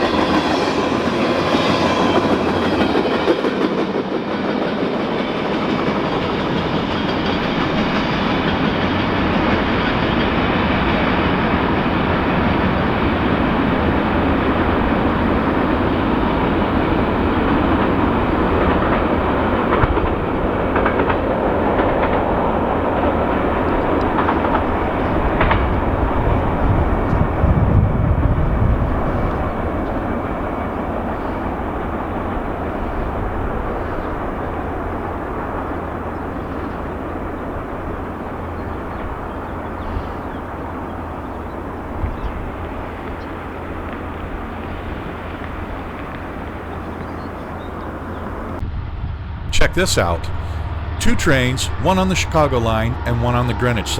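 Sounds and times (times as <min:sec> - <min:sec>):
train wheels rumbling on rail: 0:00.0 - 0:53.9
wheels clicking over rail joints: 0:05.6 - 0:27.3.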